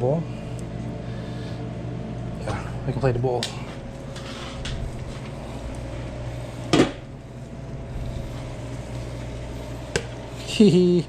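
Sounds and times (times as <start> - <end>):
kitchen machinery humming: 0.0 - 11.0.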